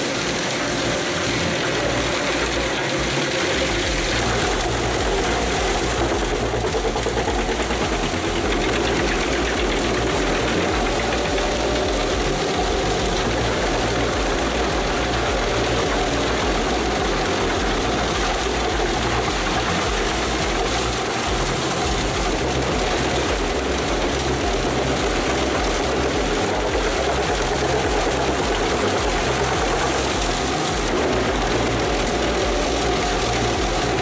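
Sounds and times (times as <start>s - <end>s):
wood chipper chipping timber: 0.0s - 34.0s.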